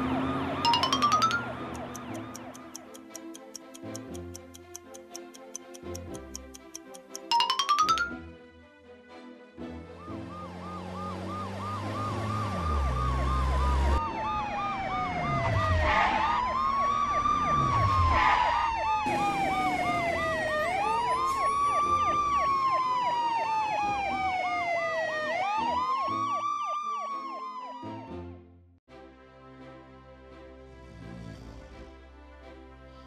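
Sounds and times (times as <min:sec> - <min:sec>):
siren fast warble: 0:00.0 - 0:02.4, 0:10.0 - 0:28.1
siren slow wail: 0:00.0 - 0:02.6, 0:09.7 - 0:28.5
vehicles whooshing past: 0:00.0 - 0:02.8, 0:09.8 - 0:25.7, 0:30.6 - 0:32.0.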